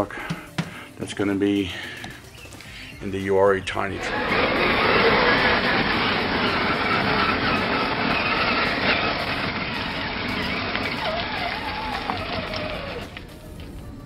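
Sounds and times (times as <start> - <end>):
electric motor whining: 3.9 - 13.8.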